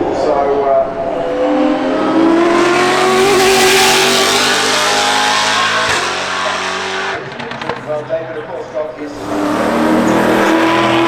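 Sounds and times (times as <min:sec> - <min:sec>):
car engine revving hard: 0:01.5 - 0:07.7, 0:09.1 - 0:11.0.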